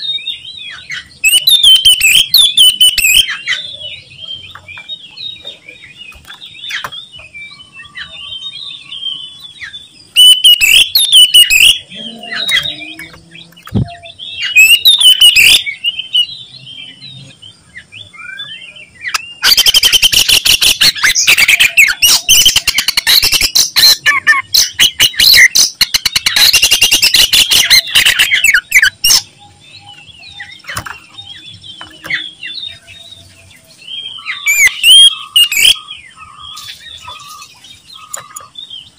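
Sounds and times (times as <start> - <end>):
bird singing chirps and whistles: 0.0 - 38.9
bird rapid chattering: 10.1 - 16.2, 19.0 - 32.8, 34.0 - 38.8.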